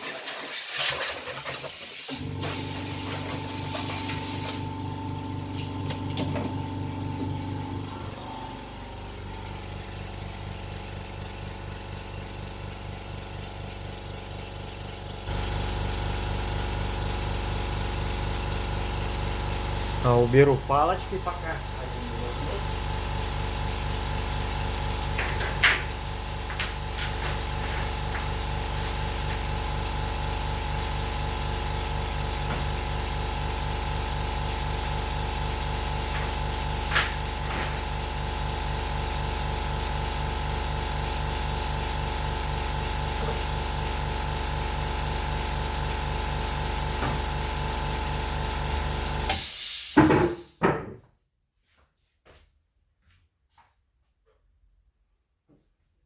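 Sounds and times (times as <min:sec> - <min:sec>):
motor humming: 0:02.1 - 0:10.4.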